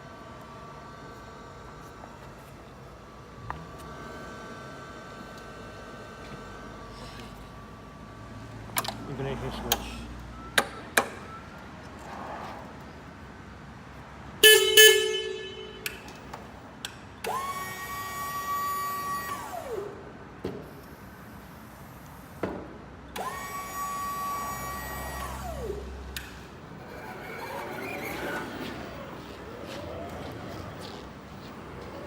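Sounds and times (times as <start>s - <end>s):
pallet truck horn blasts: 14.4s - 16.2s
electric motor whining: 23.2s - 32.0s.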